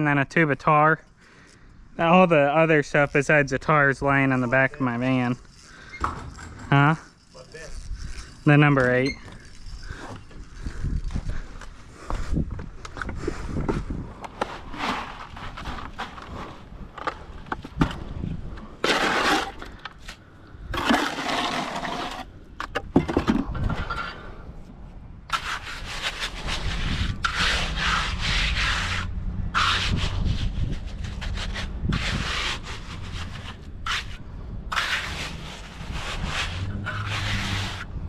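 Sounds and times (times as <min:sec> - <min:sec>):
hand tool scraping concrete: 0:01.4 - 0:11.4, 0:13.9 - 0:18.0, 0:18.6 - 0:22.3, 0:25.3 - 0:37.9.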